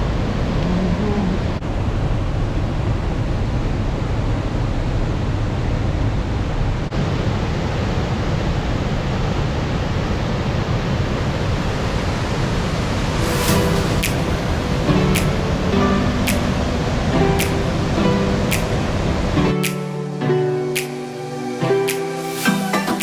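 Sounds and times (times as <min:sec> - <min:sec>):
waterfall rushing: 0:11.6 - 0:23.0.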